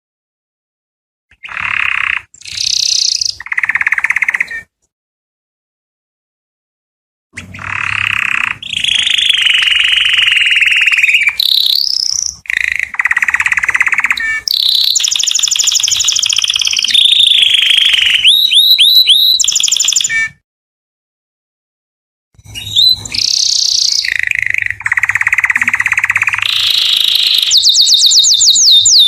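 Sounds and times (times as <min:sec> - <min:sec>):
canary singing trills: 0:01.3 - 0:04.8, 0:07.4 - 0:20.4, 0:22.4 - 0:29.0.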